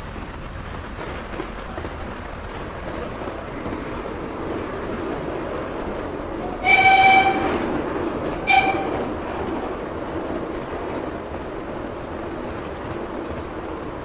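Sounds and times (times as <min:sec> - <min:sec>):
train wheels rumbling on rails: 0:00.0 - 0:14.0
locomotive warning horn blasts: 0:06.6 - 0:07.6, 0:08.4 - 0:09.1.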